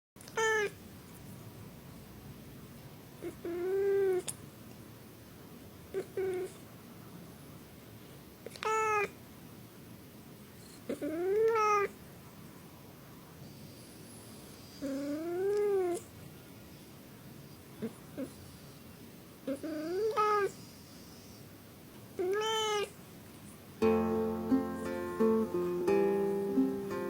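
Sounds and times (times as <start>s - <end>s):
cat meowing: 0.3s - 0.8s, 3.2s - 4.2s, 5.9s - 6.6s, 8.5s - 9.2s, 10.9s - 12.0s, 14.8s - 16.0s, 19.5s - 20.6s, 22.2s - 23.0s.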